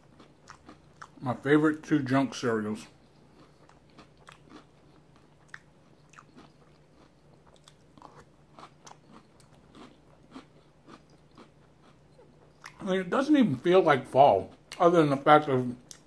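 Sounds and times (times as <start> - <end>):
soft cereal crunches: 2.8 - 12.0.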